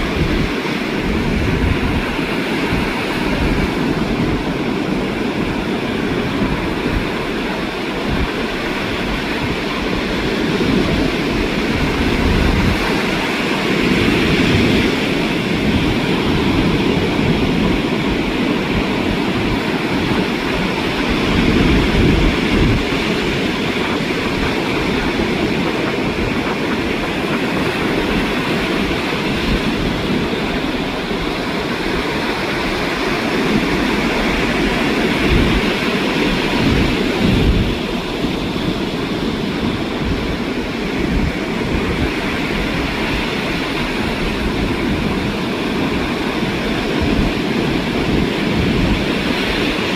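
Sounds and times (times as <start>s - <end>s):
ocean surf rushing: 0.0s - 49.9s
wind buffeting microphone: 0.0s - 49.9s.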